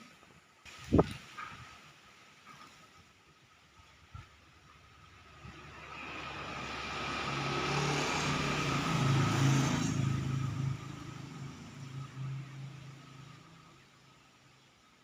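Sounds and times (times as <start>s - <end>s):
road vehicle passing by: 4.4s - 15.0s.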